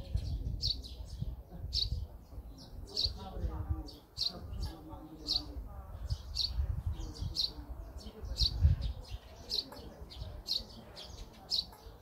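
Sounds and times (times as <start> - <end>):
small bird chirping: 0.0 - 12.0.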